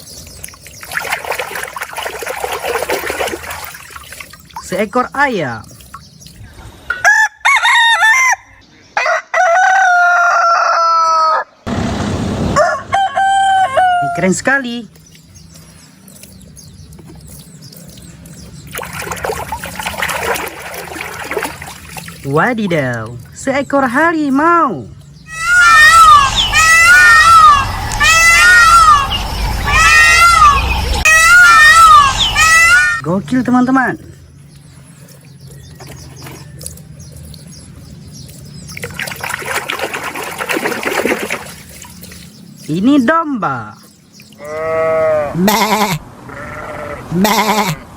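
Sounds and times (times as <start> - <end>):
water running and splashing: 0.0 - 6.4, 14.9 - 23.4, 34.4 - 43.0.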